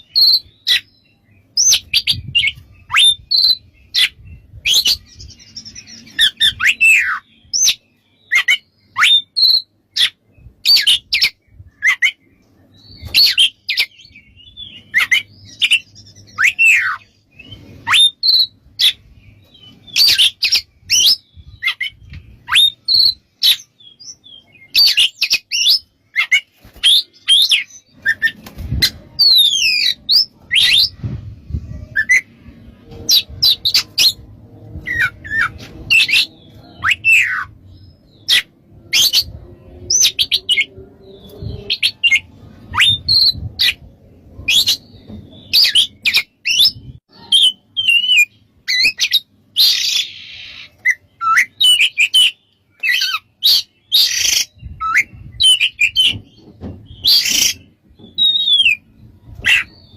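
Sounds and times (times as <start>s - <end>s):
bird singing whistled notes: 0.0s - 28.4s, 34.8s - 43.8s, 56.9s - 58.9s.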